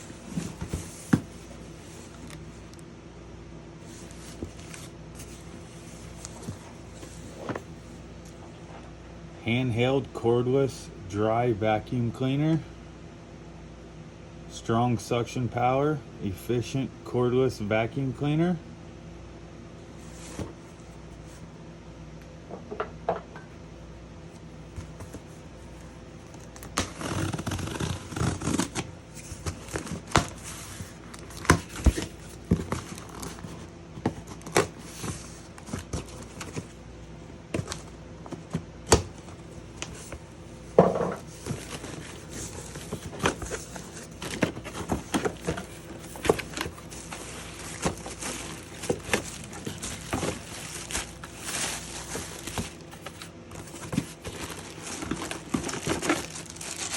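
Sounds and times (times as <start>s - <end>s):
packaging rustling and crinkling: 0.0s - 2.5s, 26.2s - 36.8s, 40.9s - 56.9s.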